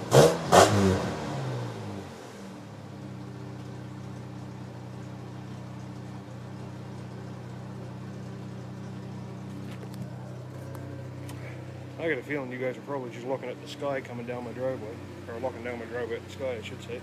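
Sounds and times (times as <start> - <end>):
truck engine idling: 2.5 - 17.0.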